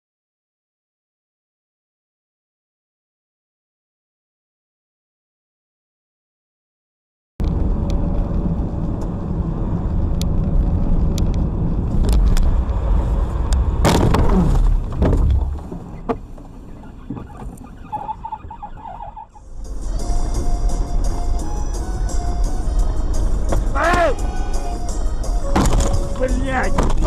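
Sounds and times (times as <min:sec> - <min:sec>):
car road and engine noise: 0:07.4 - 0:27.0.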